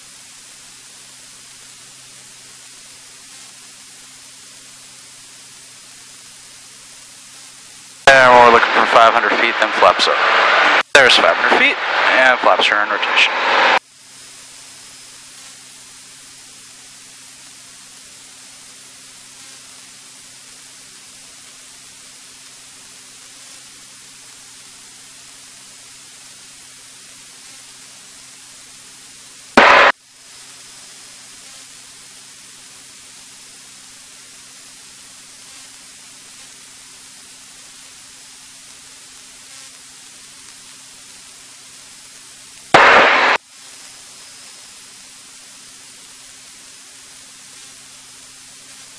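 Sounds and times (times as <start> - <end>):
loud static bursts: 0.0 - 48.9
radio intercom hiss: 8.0 - 14.5, 29.4 - 30.0, 42.7 - 44.5.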